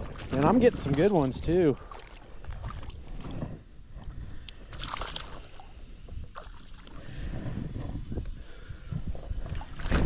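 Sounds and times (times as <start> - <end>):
river water splashing: 0.0 - 3.3, 4.7 - 7.0, 9.4 - 10.0
wind rumble on microphone: 0.0 - 10.0.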